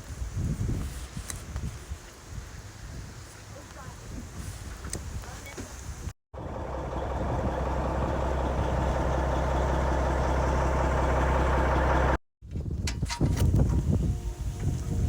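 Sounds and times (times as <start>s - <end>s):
engine idling: 6.4s - 12.2s.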